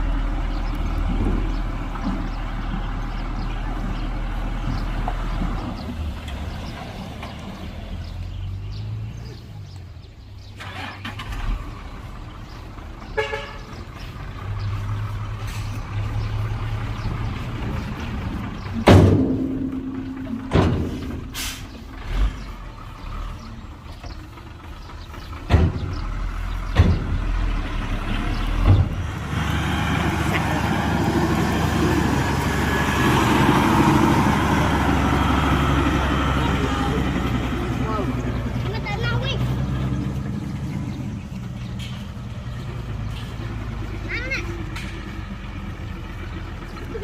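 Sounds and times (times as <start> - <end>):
heavy diesel machinery running: 0.0 - 47.0
sharp metallic clanks: 18.7 - 21.9.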